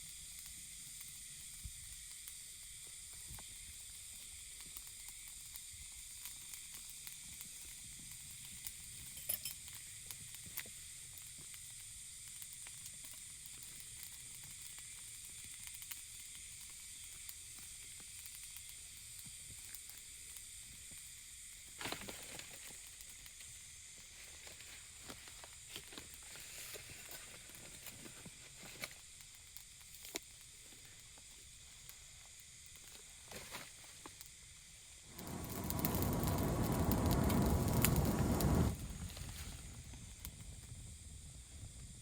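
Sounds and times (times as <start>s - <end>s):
sizzling hiss: 0.0s - 42.0s
small clicks and pops: 28.8s - 33.0s, 35.1s - 40.4s.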